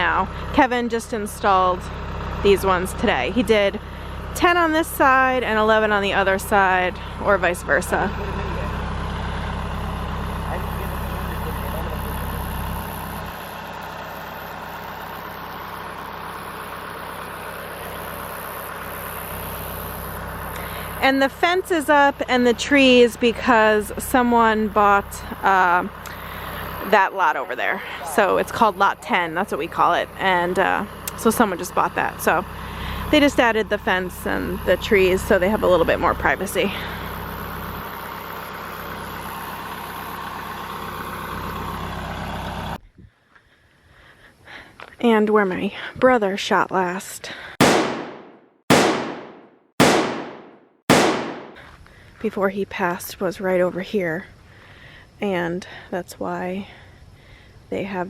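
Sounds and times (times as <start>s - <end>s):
engine idling: 0.0s - 42.8s.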